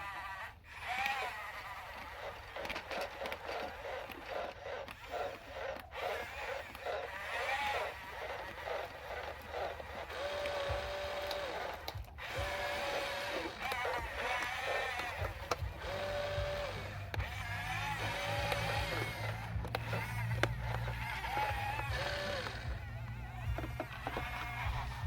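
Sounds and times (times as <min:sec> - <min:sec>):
toy electric motors whining: 0:00.0 - 0:25.0.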